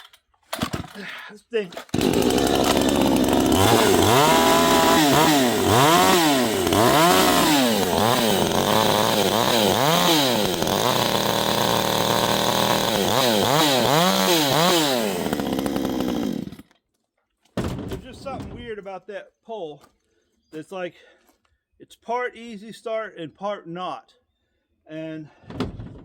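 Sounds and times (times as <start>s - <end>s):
chainsaw revving: 1.8s - 16.7s.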